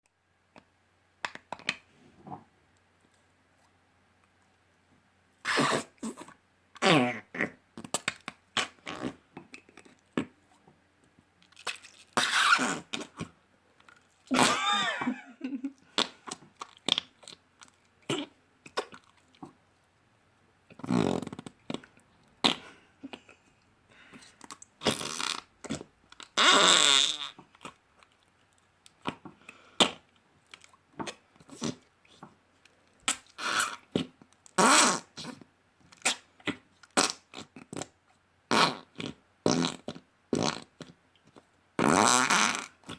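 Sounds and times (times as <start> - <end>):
slime squelching: 11.4 - 15.2, 15.8 - 19.7.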